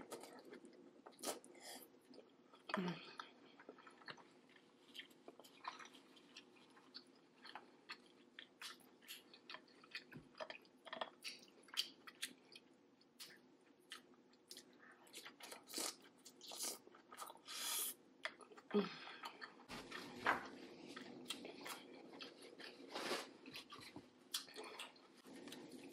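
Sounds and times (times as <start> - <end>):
chewing and biting food: 3.5 - 12.6, 19.3 - 25.9.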